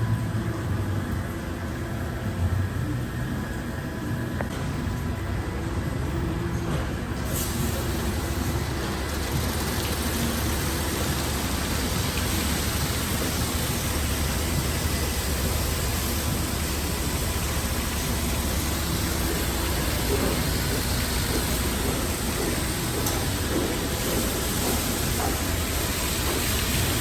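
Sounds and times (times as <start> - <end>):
car wash equipment rushing: 6.5 - 27.0.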